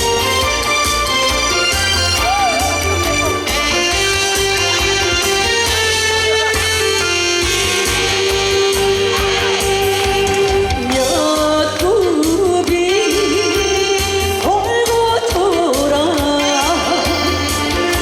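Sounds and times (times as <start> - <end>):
backing music with steady beat: 0.0 - 18.0
woman singing: 8.1 - 18.0.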